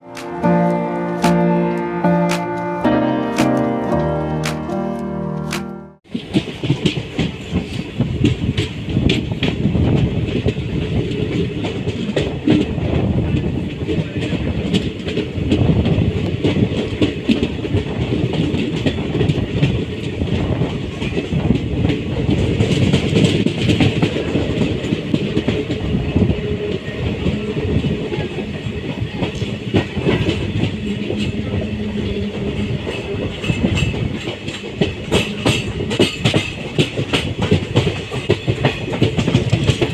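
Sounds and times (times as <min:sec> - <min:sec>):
train rumble: 0:06.0 - 0:39.9
wheels clattering over rail joints: 0:29.2 - 0:39.9.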